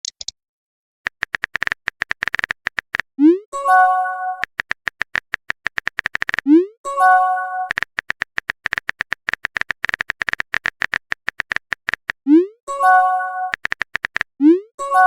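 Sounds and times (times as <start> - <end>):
phone keyboard typing clicks: 0.0 - 0.3, 1.1 - 3.1, 4.4 - 6.5, 7.7 - 12.2, 13.5 - 14.3.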